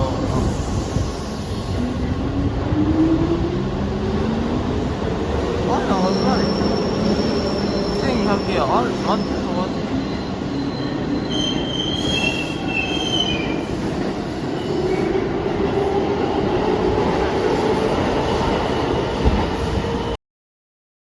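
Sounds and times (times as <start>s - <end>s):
train wheels squealing: 5.7s - 13.9s.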